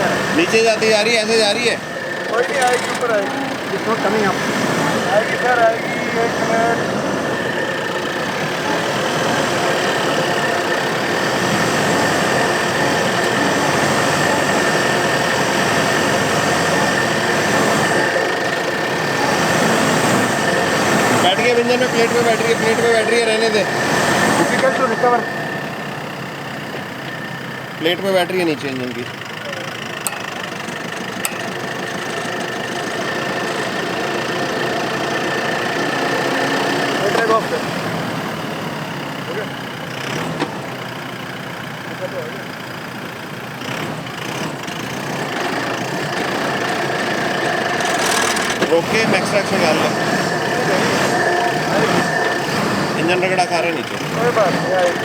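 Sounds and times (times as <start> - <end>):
diesel engine running under load: 0.0 - 55.0
thin high whine: 47.8 - 55.0.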